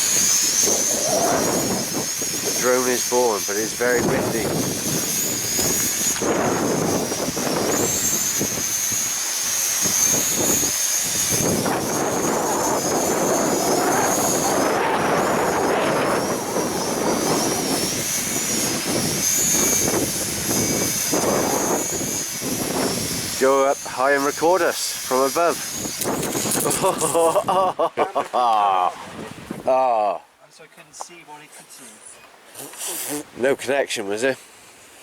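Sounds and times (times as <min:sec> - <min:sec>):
drone propellers whining: 0:00.0 - 0:27.1
wind rumbling on microphone: 0:00.0 - 0:27.7, 0:28.9 - 0:29.8.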